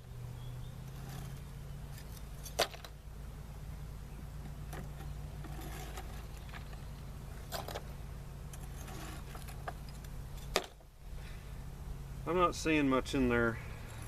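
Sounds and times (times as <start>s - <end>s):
steady low hum: 0.0s - 14.0s
clicks and scrapes of hive handling: 4.4s - 8.0s, 8.6s - 10.8s.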